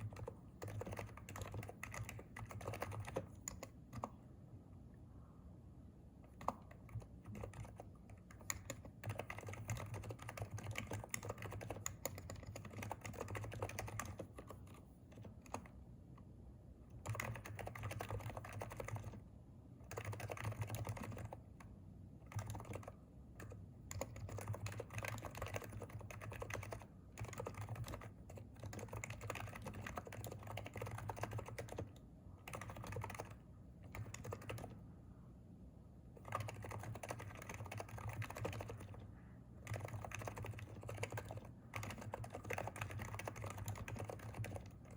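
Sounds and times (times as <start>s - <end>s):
rapid keyboard typing: 0.0s - 4.2s, 6.3s - 15.8s, 16.9s - 19.2s, 19.8s - 34.8s, 36.2s - 44.9s.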